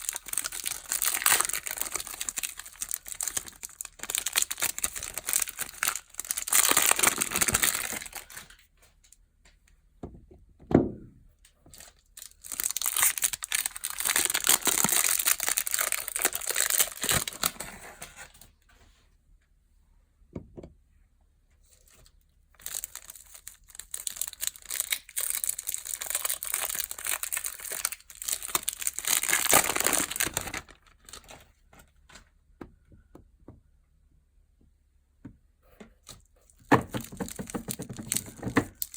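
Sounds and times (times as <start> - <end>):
packaging crinkling and tearing: 0.0 - 8.6, 11.7 - 18.5, 21.7 - 31.5, 36.0 - 38.9.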